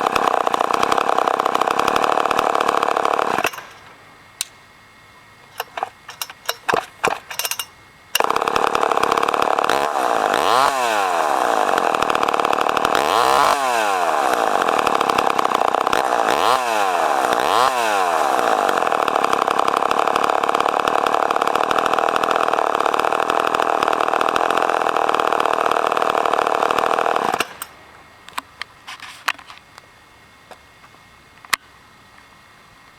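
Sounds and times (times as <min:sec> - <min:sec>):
chainsaw running and revving: 0:00.0 - 0:03.9, 0:08.2 - 0:27.8.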